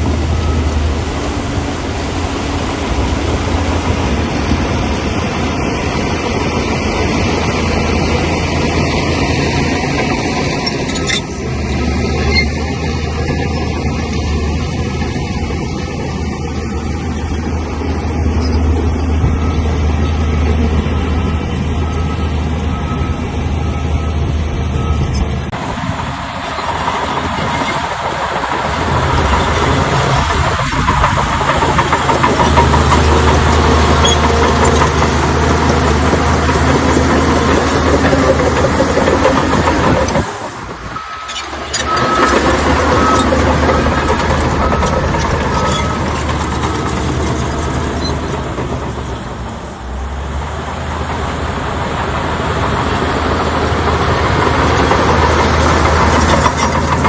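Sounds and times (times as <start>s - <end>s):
bulldozer diesel engine: 0.0s - 57.0s
rough clattering noise: 8.7s - 15.8s, 26.6s - 49.6s, 53.4s - 57.0s.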